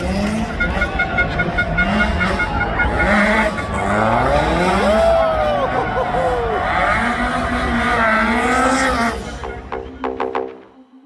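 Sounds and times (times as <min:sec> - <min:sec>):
rally car engine revving: 0:00.0 - 0:10.6.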